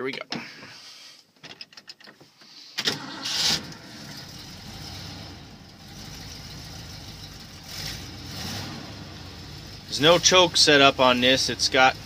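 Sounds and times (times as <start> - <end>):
truck engine starting and idling: 2.8 - 12.0.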